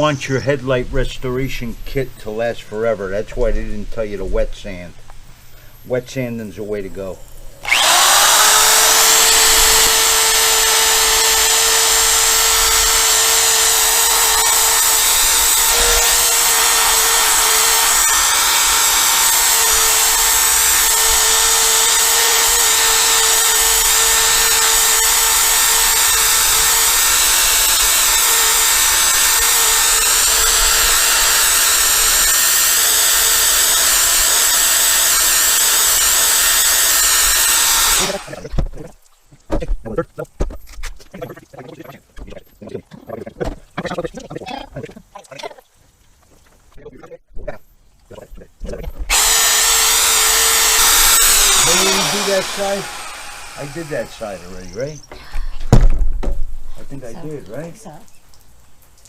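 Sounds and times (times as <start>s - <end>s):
electric drill motor whine: 7.3s - 38.4s, 49.1s - 54.7s.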